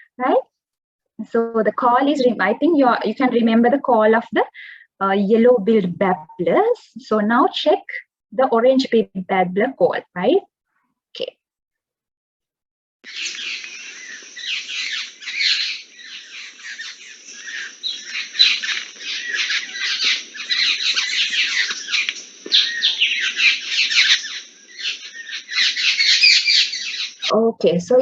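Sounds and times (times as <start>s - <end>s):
birds chattering: 13.0s - 28.0s.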